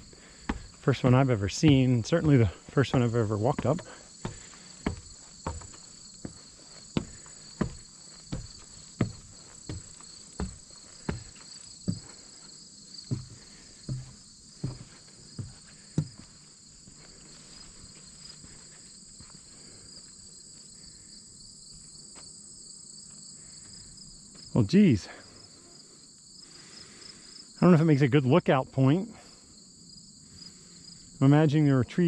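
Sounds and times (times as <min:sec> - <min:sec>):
heavy footsteps: 0:00.0 - 0:19.5
high-pitched insect chorus: 0:00.0 - 0:32.0.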